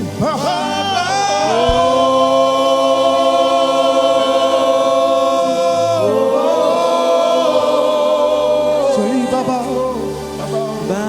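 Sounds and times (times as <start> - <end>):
choir singing: 0.2 - 11.0.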